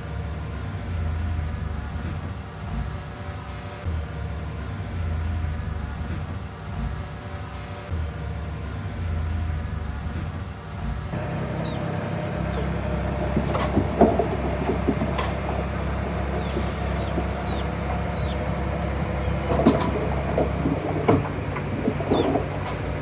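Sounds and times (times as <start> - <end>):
bulldozer diesel engine running: 11.1 - 23.0
metallic clanks and knocks: 11.2 - 23.0.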